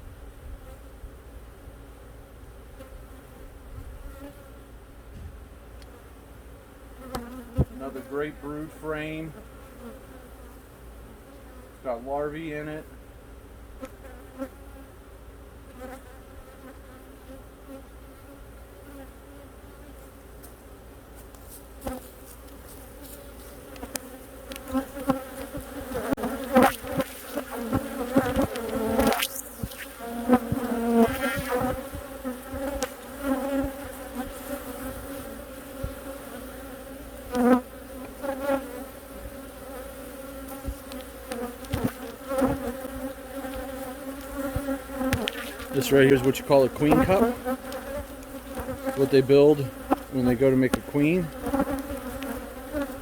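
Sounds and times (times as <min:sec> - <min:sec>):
clicks and scrapes of hive frames: 0:07.0 - 0:07.8, 0:21.3 - 0:36.6, 0:37.3 - 0:53.0
bees buzzing: 0:21.8 - 0:53.0.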